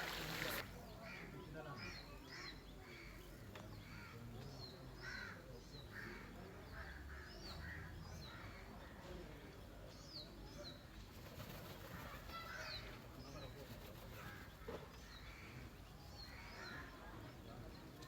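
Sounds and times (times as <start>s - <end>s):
harsh lower bird calls: 0.0s - 0.7s.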